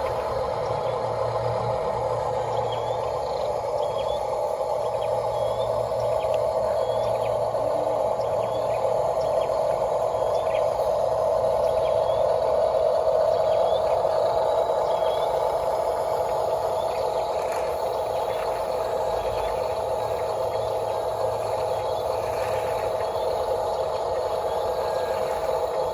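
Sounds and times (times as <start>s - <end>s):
toy electric motor humming: 0.0s - 25.9s.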